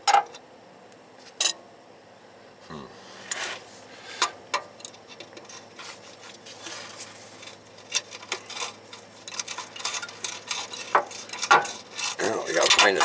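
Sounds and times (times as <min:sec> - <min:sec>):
hand tools clicking and clinking: 0:07.3 - 0:13.0.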